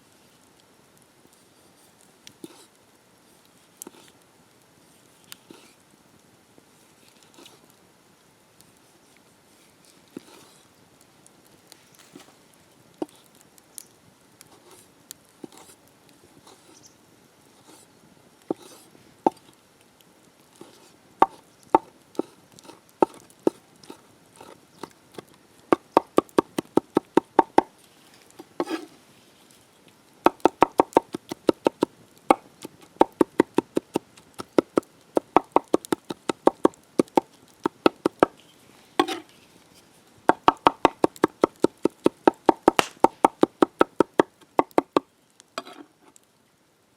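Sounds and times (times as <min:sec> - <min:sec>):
knife chopping on cutting board: 0:40.4 - 0:44.8.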